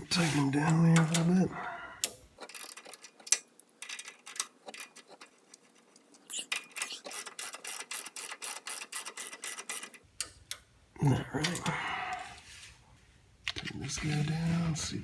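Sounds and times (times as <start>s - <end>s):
ratchet wrench clicking: 6.5s - 10.4s.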